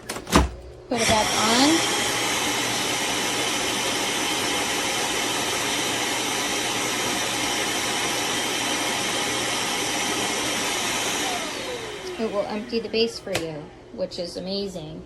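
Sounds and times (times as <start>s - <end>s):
vacuum suction motor running: 0.9s - 14.0s.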